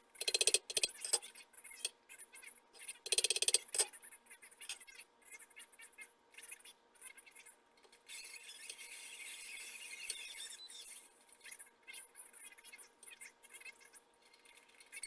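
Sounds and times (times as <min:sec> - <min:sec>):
cutting tool scraping metal: 0:00.2 - 0:01.2, 0:03.1 - 0:03.9.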